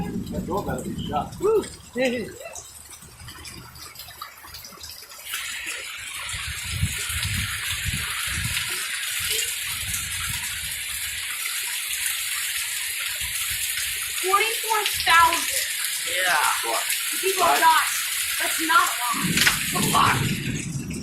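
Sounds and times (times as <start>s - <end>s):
low rumbling: 0.0s - 3.9s, 19.0s - 21.0s
running water rushing: 0.0s - 21.0s.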